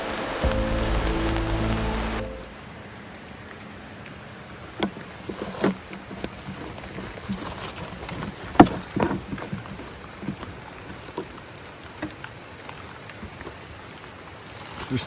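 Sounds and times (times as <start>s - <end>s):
fuel sloshing in a tank: 4.4s - 15.0s.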